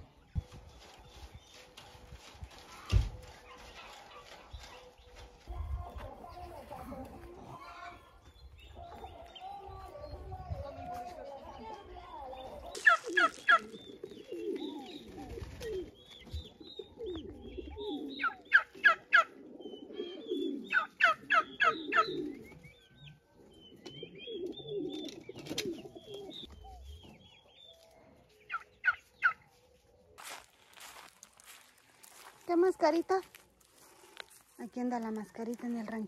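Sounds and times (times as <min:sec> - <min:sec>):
birds calling low wavering notes: 0:07.4 - 0:31.1.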